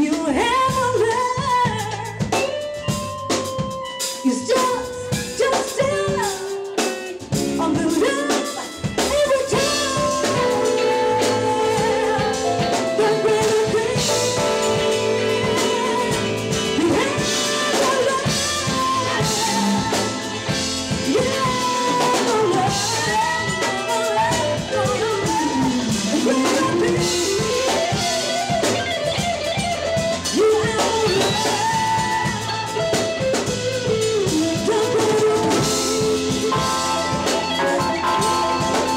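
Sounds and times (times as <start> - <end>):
jazz band playing: 0.0 - 38.9
sliding melody line: 34.4 - 38.9.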